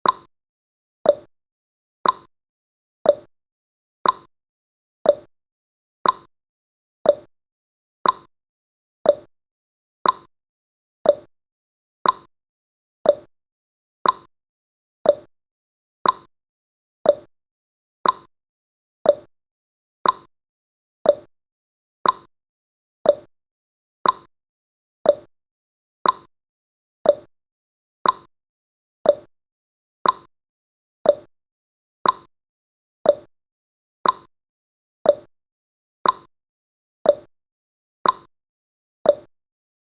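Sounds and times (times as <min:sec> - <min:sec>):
timer clicks: 0:00.0 - 0:00.3, 0:01.0 - 0:01.3, 0:02.0 - 0:02.3, 0:03.0 - 0:03.3, 0:04.0 - 0:04.3, 0:05.0 - 0:05.3, 0:06.0 - 0:06.3, 0:07.0 - 0:07.3, 0:08.0 - 0:08.3, 0:09.0 - 0:09.3, 0:10.0 - 0:10.3, 0:11.0 - 0:11.3, 0:12.0 - 0:12.3, 0:13.0 - 0:13.3, 0:14.0 - 0:14.3, 0:15.0 - 0:15.3, 0:16.0 - 0:16.3, 0:17.0 - 0:17.3, 0:18.0 - 0:18.3, 0:19.0 - 0:19.3, 0:20.0 - 0:20.3, 0:21.0 - 0:21.3, 0:22.0 - 0:22.3, 0:23.0 - 0:23.3, 0:24.0 - 0:24.3, 0:25.0 - 0:25.3, 0:26.0 - 0:26.3, 0:27.0 - 0:27.3, 0:28.0 - 0:28.3, 0:29.0 - 0:29.3, 0:30.0 - 0:30.3, 0:31.0 - 0:31.3, 0:32.0 - 0:32.3, 0:33.0 - 0:33.3, 0:34.0 - 0:34.3, 0:35.0 - 0:35.3, 0:36.0 - 0:36.3, 0:37.0 - 0:37.3, 0:38.0 - 0:38.3, 0:39.0 - 0:39.3.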